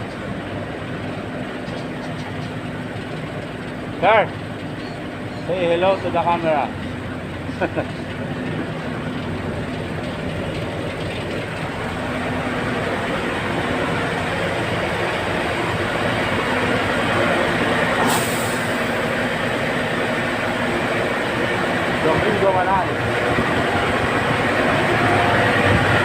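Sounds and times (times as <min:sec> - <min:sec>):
tanker truck running: 0:00.0 - 0:26.0
sharp hiss: 0:18.0 - 0:18.8.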